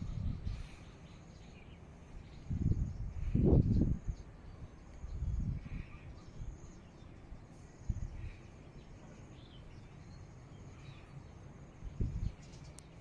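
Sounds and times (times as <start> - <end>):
wind buffeting microphone: 0.0 - 8.8, 11.7 - 13.0.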